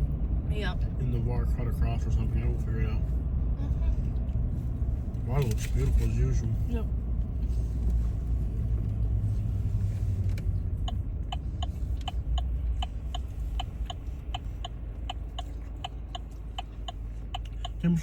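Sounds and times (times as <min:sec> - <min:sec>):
car road noise and engine: 0:00.0 - 0:18.0
turn signal ticking: 0:04.1 - 0:18.0.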